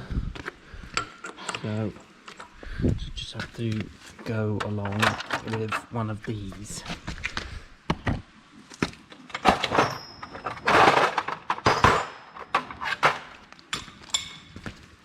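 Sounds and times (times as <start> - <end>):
metal tools clinking: 1.0 - 2.6, 4.2 - 6.8, 9.3 - 13.3.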